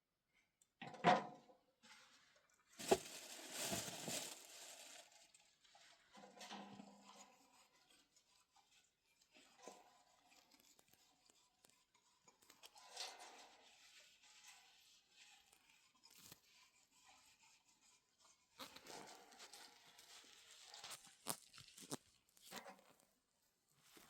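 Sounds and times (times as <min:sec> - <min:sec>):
rustling and crinkling: 0:02.7 - 0:06.7, 0:18.6 - 0:24.0.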